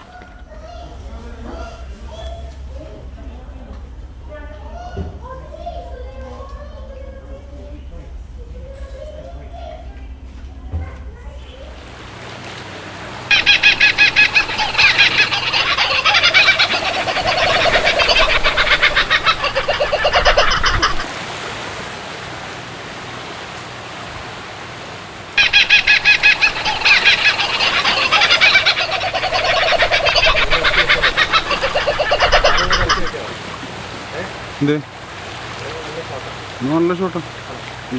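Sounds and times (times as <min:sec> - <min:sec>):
steady background noise: 0:00.0 - 0:37.9
fowl calling in pulsed notes: 0:13.3 - 0:21.1, 0:25.4 - 0:33.2.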